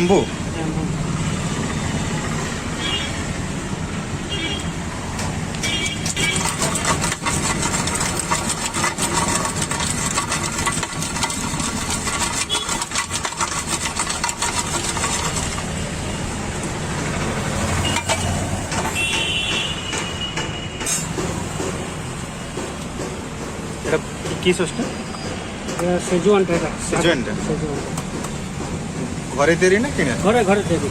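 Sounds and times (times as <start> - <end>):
vehicle engines running: 0.4 - 30.9.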